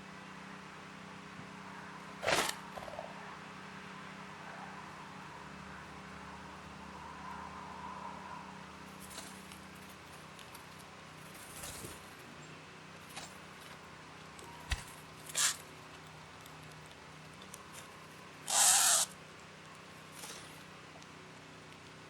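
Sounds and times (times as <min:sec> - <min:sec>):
bird short chips: 0:14.4 - 0:15.9, 0:18.5 - 0:19.2
bird harsh rasping call: 0:15.3 - 0:15.7, 0:18.4 - 0:19.2.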